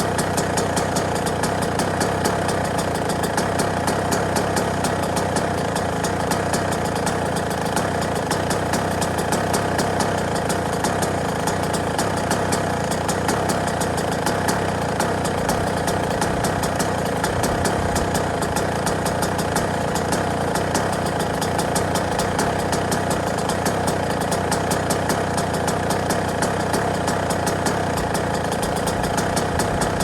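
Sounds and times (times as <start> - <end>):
two-stroke engine idling: 0.0 - 30.0.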